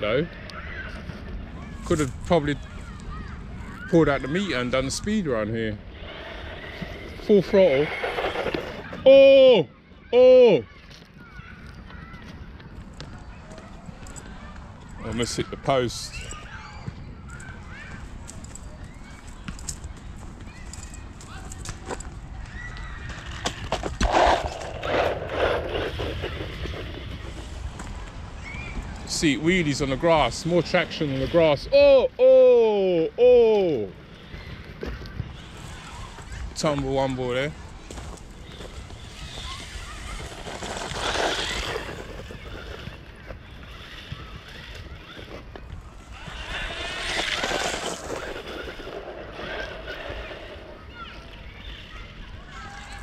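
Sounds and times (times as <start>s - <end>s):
rc truck clattering over grass: 6.0s - 9.0s, 23.2s - 28.1s, 35.0s - 52.0s.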